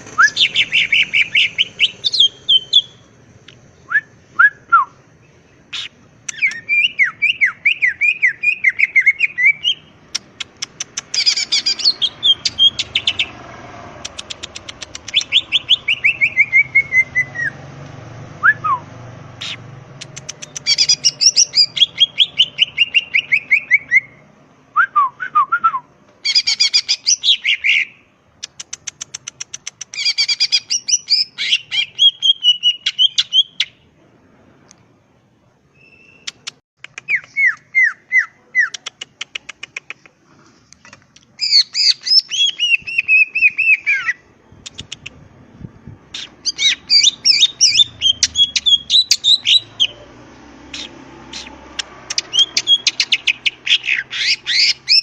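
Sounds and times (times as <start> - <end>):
bird singing chattering trills: 0.0 - 3.1, 3.7 - 13.4, 14.0 - 17.6, 19.4 - 24.2, 46.1 - 50.1, 50.7 - 55.0.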